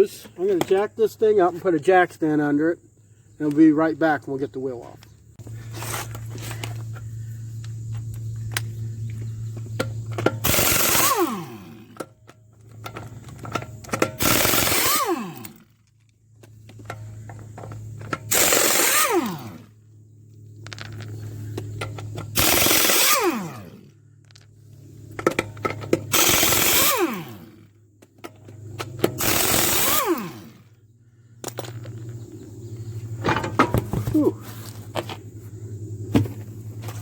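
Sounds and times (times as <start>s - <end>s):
motor winding down: 10.4s - 12.0s, 14.2s - 15.7s, 18.3s - 19.8s, 22.3s - 23.9s, 26.1s - 27.7s, 29.1s - 30.7s.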